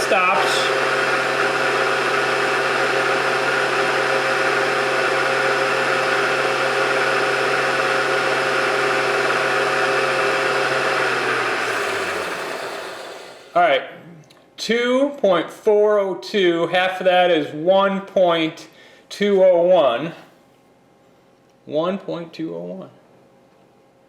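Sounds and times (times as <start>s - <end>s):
milling machine motor whining: 0.0s - 13.6s.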